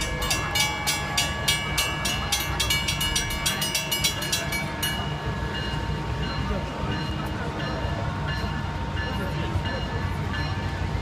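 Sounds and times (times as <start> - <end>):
bell ringing rapidly: 0.0 - 7.7
diesel train engine rumbling: 0.0 - 11.0.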